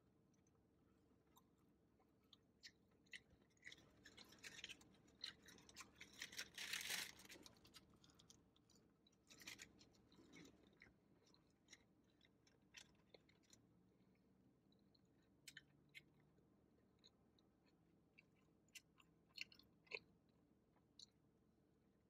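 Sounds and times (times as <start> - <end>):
person chewing: 1.2 - 13.6, 15.0 - 16.4, 17.0 - 20.1.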